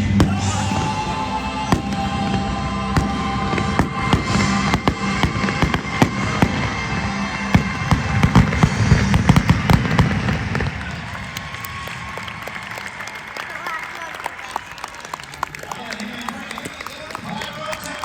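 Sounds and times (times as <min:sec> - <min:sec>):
music playing: 0:00.0 - 0:11.6
fireworks bangs and crackles: 0:00.0 - 0:13.0.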